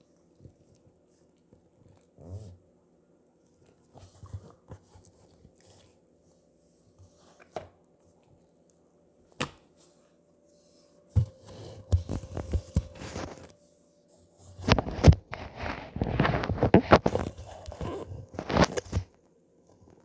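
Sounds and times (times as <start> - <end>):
slime being handled: 11.2 - 13.5.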